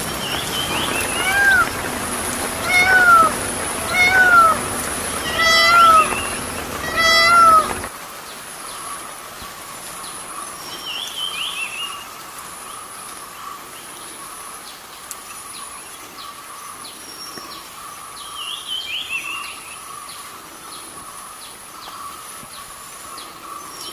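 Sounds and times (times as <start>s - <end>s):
high background drone: 0.0s - 7.9s
small birds chirping: 0.0s - 7.9s
cat meowing: 0.9s - 1.9s, 2.5s - 7.9s.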